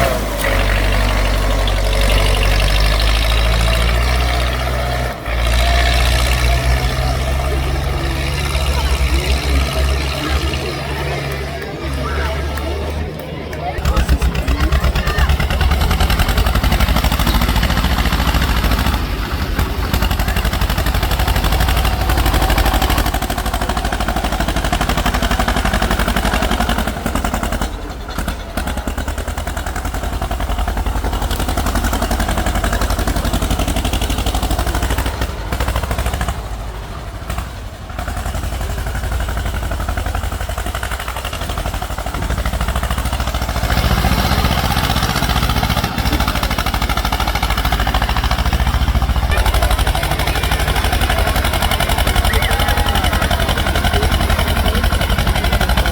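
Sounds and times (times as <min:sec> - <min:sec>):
tractor engine clattering: 0:00.0 - 0:55.9.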